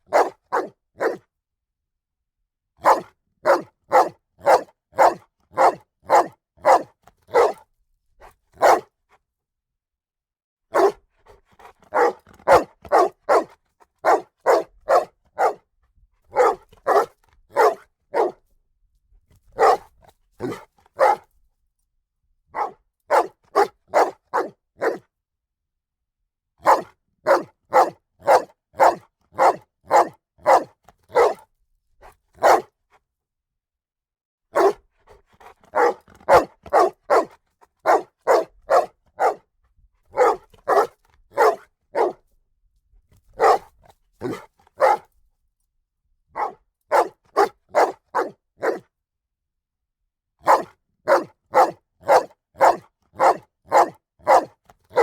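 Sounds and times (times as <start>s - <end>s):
dog barking: 0.0s - 1.2s, 2.8s - 7.6s, 8.6s - 9.0s, 10.7s - 11.0s, 11.6s - 15.7s, 16.3s - 18.4s, 19.5s - 21.3s, 22.5s - 25.1s, 26.6s - 32.8s, 34.5s - 39.5s, 40.1s - 42.3s, 43.3s - 45.1s, 46.3s - 48.9s, 50.4s - 55.0s.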